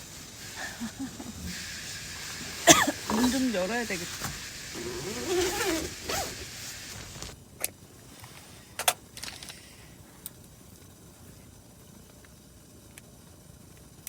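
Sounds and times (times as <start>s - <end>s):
zipper being pulled open: 4.2s - 7.4s.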